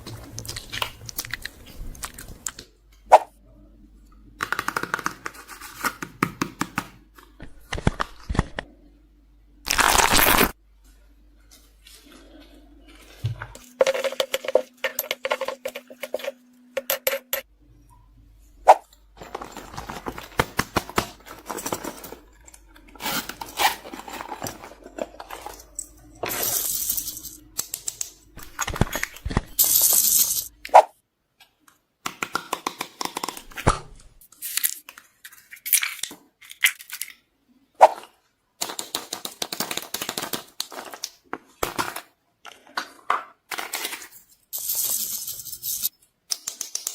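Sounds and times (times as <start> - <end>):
plastic pieces clicking: 43.5 - 46.9.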